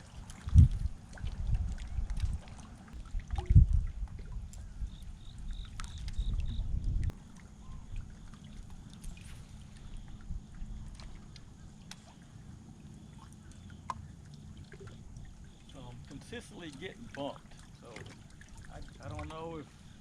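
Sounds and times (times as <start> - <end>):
wind buffeting microphone: 0.0 - 11.6
water around boat: 0.0 - 20.0.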